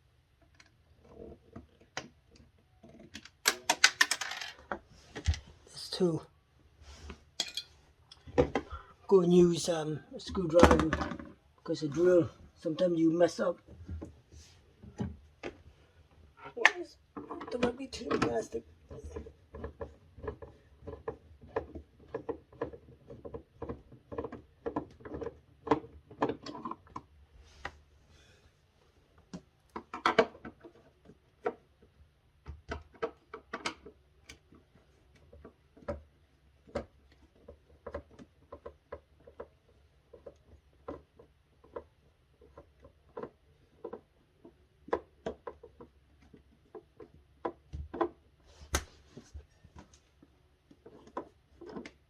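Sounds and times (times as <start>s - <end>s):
plastic parts being handled: 0.4s - 5.5s.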